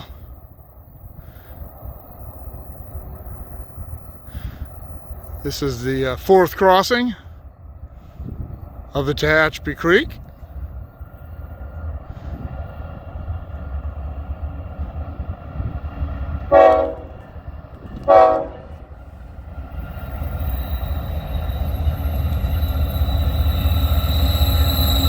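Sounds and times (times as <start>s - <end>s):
diesel locomotives rumbling: 0.0s - 25.0s
train horn blasts: 16.5s - 17.2s, 18.0s - 18.8s.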